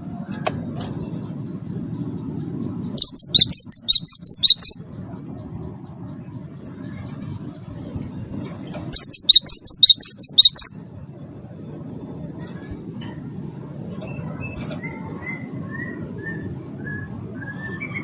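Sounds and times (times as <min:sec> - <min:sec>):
bird chirping rapidly: 0:01.7 - 0:10.9.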